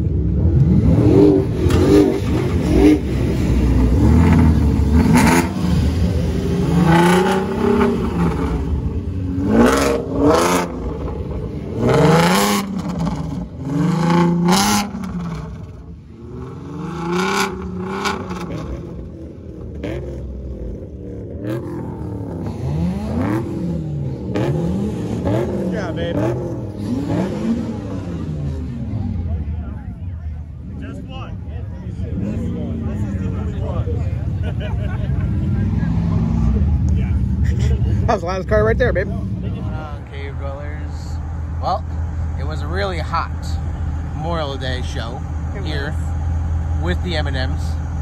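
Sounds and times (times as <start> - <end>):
car engines revving: 0.0 - 48.0.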